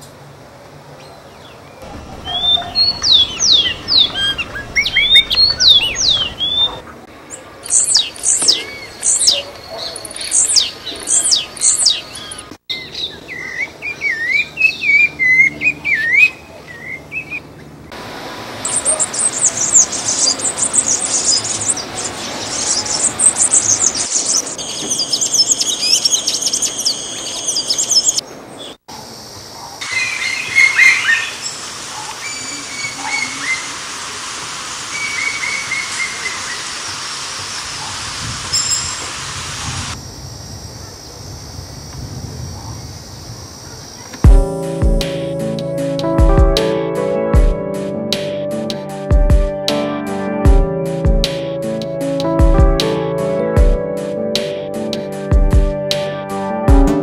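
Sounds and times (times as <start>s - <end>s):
high twittering bird chorus: 1.0s - 17.8s, 18.6s - 33.8s, 34.9s - 37.9s
small birds singing: 1.0s - 17.8s, 18.6s - 33.8s, 34.9s - 37.9s
warbled bird notes: 1.8s - 7.1s.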